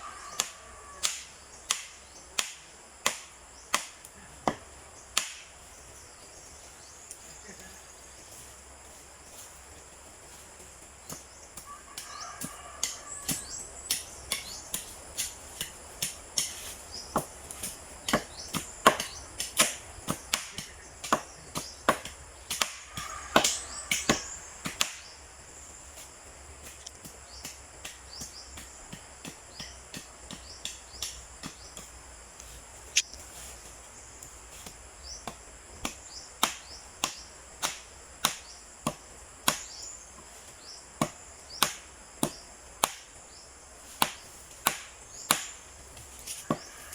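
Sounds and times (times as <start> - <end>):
insects buzzing: 0.0 - 46.9
chopping strikes on wood: 0.3 - 5.5, 11.0 - 25.1, 26.6 - 31.9, 34.6 - 39.8, 41.0 - 43.1, 43.9 - 46.8.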